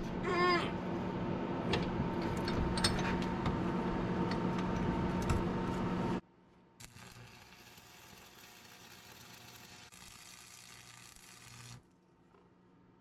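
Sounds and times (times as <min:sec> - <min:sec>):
steady machine hum: 0:00.0 - 0:06.2.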